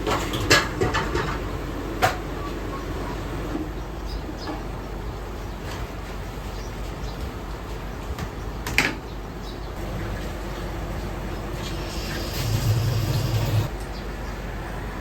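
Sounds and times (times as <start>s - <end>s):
utensils and pots clinking: 0.0s - 2.3s, 9.8s - 13.7s
kitchen hum: 9.8s - 13.9s.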